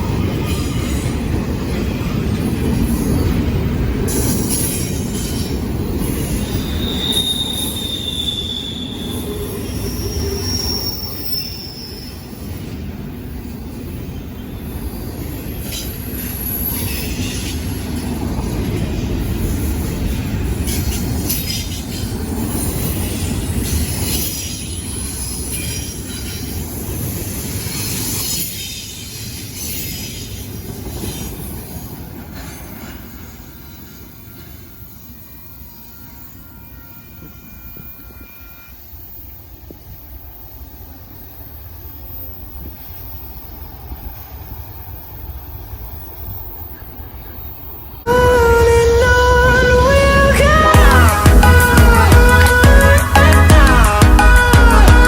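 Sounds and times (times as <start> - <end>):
train wheels rumbling on rails: 0.0 - 35.8
high wheel squeals: 4.1 - 12.7, 14.4 - 19.6, 32.4 - 39.5.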